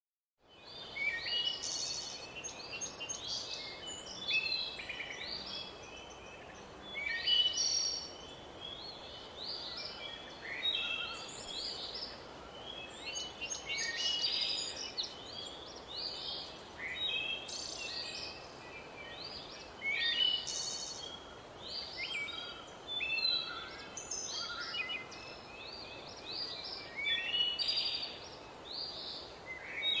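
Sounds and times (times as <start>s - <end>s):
birds singing: 0.4s - 30.0s
faint steady hiss: 0.4s - 30.0s.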